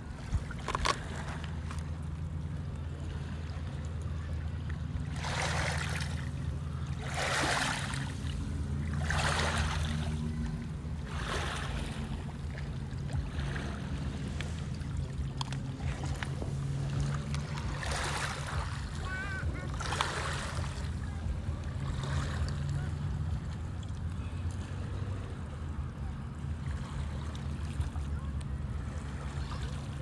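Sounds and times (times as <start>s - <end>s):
small waves washing against rocks: 0.0s - 2.3s, 4.9s - 23.8s
steady low drone: 0.0s - 30.0s.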